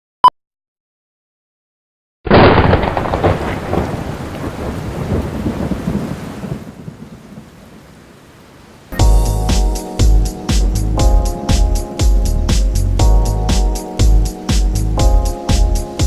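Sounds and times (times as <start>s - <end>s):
thunder-like rumble: 2.4s - 7.2s
music with a strong beat: 9.0s - 16.0s.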